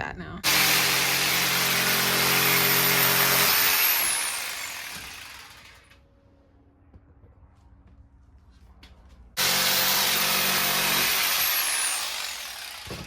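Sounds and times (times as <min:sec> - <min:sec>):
power saw cutting wood: 0:00.4 - 0:06.0, 0:09.4 - 0:13.0.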